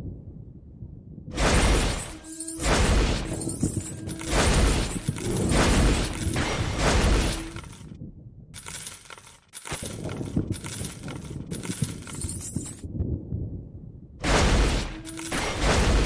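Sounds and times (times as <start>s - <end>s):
wind buffeting microphone: 3.0s - 8.7s, 9.8s - 14.2s.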